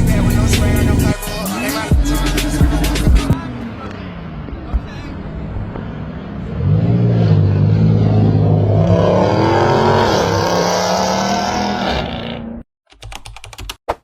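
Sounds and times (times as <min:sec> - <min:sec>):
car engine and exhaust running: 0:00.0 - 0:03.4.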